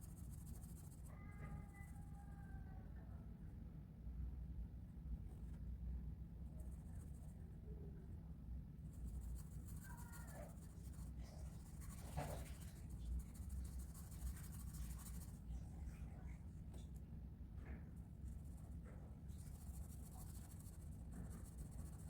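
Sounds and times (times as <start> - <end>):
colouring scratching on paper: 0.0 - 1.1, 8.9 - 16.2, 18.2 - 22.0
faint low hum: 0.0 - 22.0.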